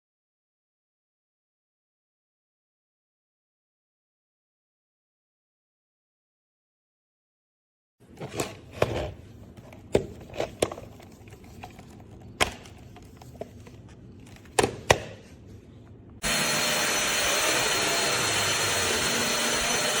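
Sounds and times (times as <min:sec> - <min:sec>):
vacuum motor whirring: 0:16.2 - 0:20.0.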